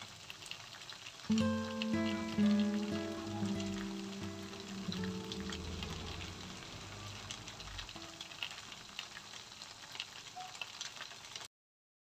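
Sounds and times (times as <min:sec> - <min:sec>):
food sizzling in a wok: 0:00.0 - 0:11.5
background music: 0:01.3 - 0:08.7.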